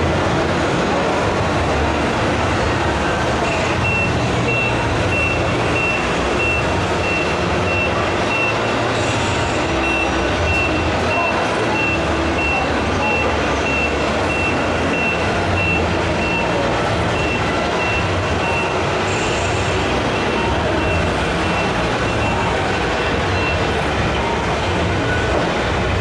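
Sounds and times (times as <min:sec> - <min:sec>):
steady background din: 0:00.0 - 0:26.0
reversing alarm beeping: 0:03.7 - 0:08.9, 0:09.7 - 0:19.4, 0:20.1 - 0:22.6, 0:23.3 - 0:25.2.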